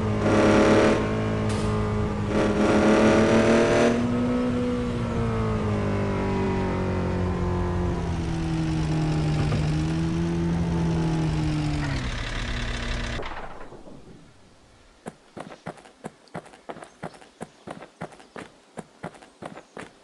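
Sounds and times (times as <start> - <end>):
vehicle engine running: 0.0 - 13.7.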